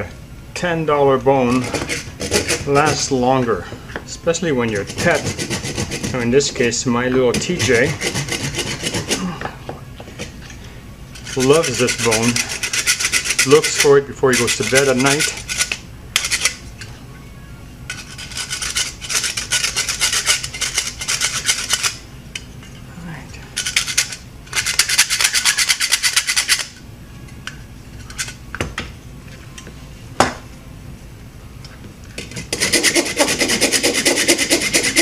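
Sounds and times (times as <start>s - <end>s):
wood rasp filing plastic: 1.5s - 3.1s, 4.7s - 6.2s, 7.3s - 9.3s, 32.5s - 35.0s.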